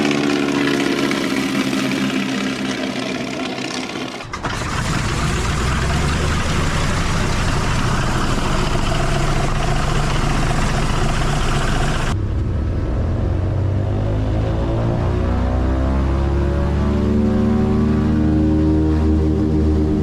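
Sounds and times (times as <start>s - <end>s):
piston aircraft engine running: 0.0s - 14.7s.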